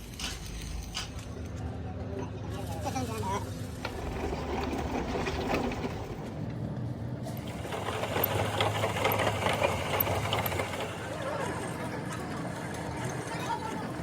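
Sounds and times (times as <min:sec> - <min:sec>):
rapid mechanical clatter: 0:03.5 - 0:14.0.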